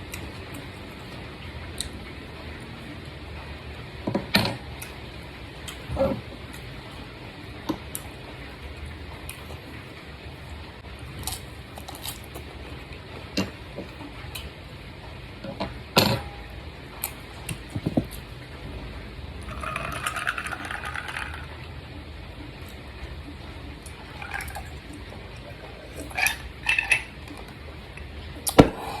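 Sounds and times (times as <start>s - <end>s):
utensils clinking on dishes: 19.4s - 21.5s, 25.9s - 27.5s.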